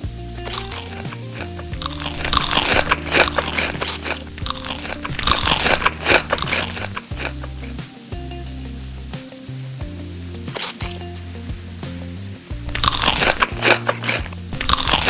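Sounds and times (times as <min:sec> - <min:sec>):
chewing crunchy food: 0:00.4 - 0:07.8, 0:12.7 - 0:15.0.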